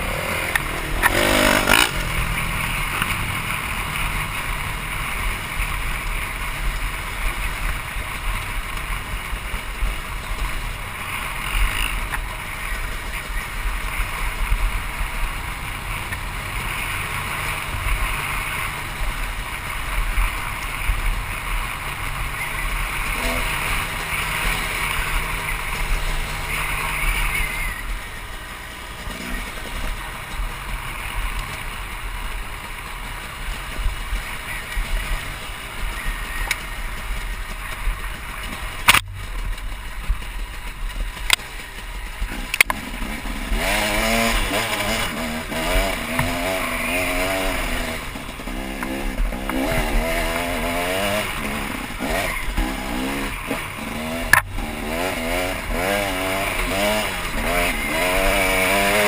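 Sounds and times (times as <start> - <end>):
two-stroke dirt bike engine: 0.0 - 59.0
sharp clicks: 38.5 - 39.8.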